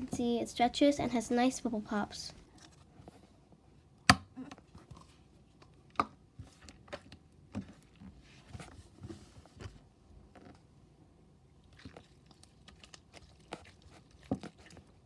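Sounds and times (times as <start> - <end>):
slime squishing: 11.6 - 15.0.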